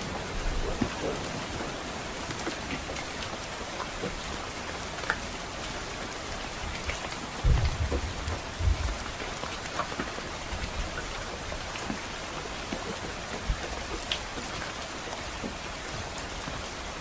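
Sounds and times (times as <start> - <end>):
rain falling on a roof: 0.0 - 17.0
distant thunder rumble: 7.4 - 9.4.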